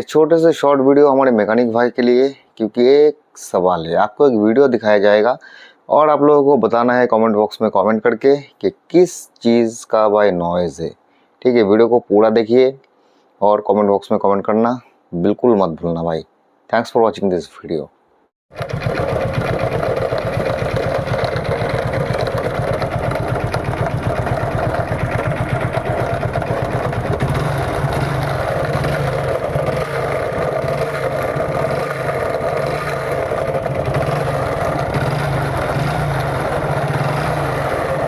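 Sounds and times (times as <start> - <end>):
fast mechanical rattle: 18.5 - 38.0
motorcycle engine running: 18.5 - 38.0.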